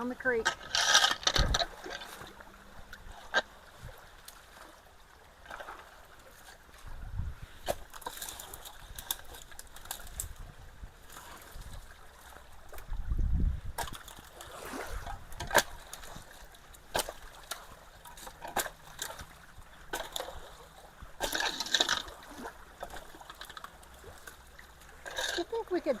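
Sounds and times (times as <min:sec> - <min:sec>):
creek water splashing: 0:00.0 - 0:26.0.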